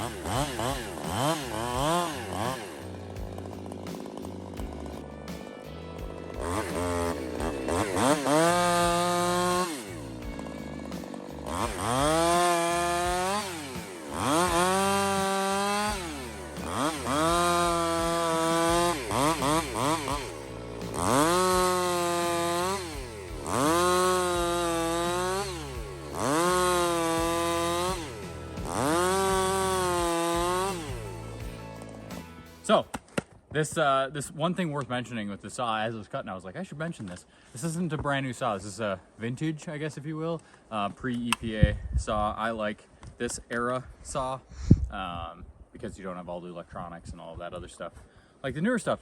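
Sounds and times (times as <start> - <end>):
chainsaw revving through logs: 0.0 - 32.7.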